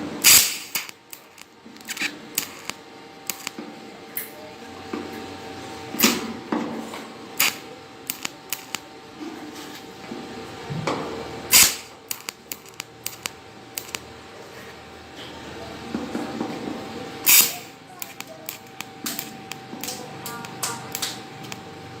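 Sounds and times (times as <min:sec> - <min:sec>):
welding cracks and snaps: 0:00.2 - 0:03.6, 0:06.0 - 0:06.2, 0:07.4 - 0:08.8, 0:11.5 - 0:14.1, 0:17.2 - 0:21.7.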